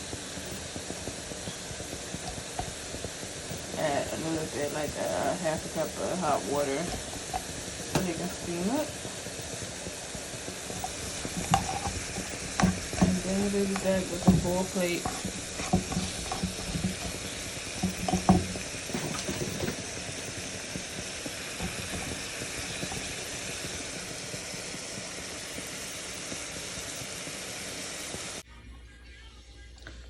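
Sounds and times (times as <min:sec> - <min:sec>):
beans sizzling in pot: 0:00.0 - 0:28.5
utensil knocking on pot: 0:10.6 - 0:23.3.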